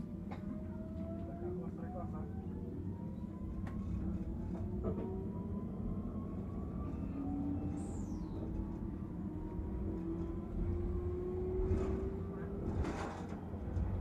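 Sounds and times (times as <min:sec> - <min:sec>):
train running rumble: 0:08.2 - 0:14.0.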